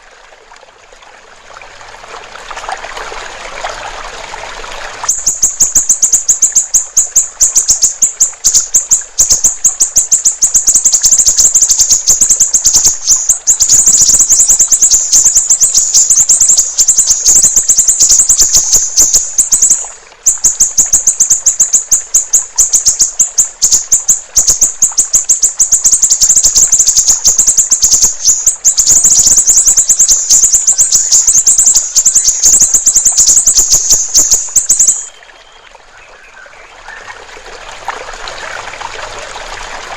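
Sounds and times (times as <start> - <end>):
bird singing rapid trill: 5.1 - 35.6.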